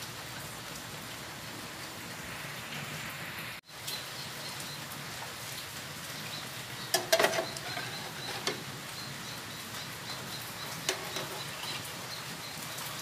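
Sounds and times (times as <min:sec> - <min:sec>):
egg and bread sizzling in pan: 0:06.7 - 0:12.5
spatula scraping and knocking pan: 0:06.9 - 0:08.7, 0:10.6 - 0:11.8.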